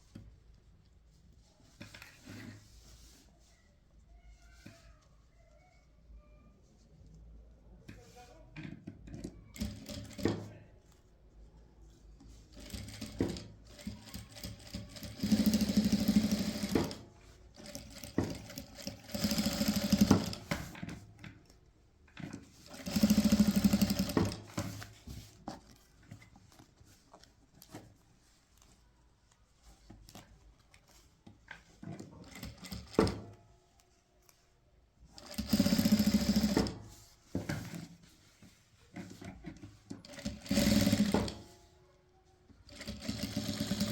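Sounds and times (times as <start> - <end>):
sewing machine stitching: 9.1 - 10.5, 12.5 - 21.0, 22.4 - 25.0, 32.0 - 33.4, 35.2 - 37.0, 40.0 - 41.6, 42.6 - 43.9.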